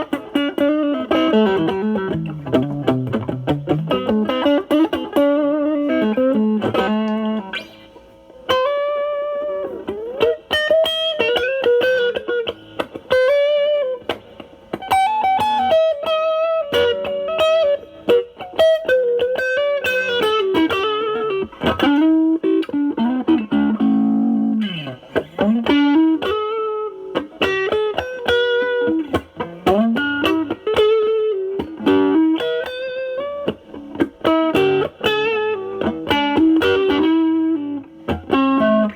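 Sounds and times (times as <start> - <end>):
overdriven electric guitar blues lead: 0.0 - 38.9.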